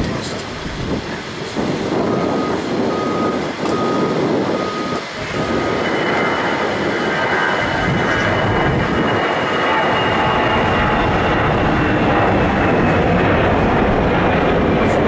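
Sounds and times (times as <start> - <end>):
high jet engine whine: 0.0 - 15.0
steady rushing noise: 0.0 - 15.0
vehicle reversing alarm beeping: 2.0 - 7.6.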